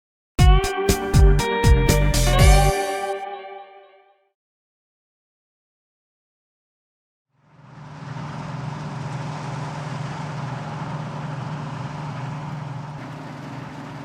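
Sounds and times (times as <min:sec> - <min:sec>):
combine harvester droning: 0:07.4 - 0:14.0.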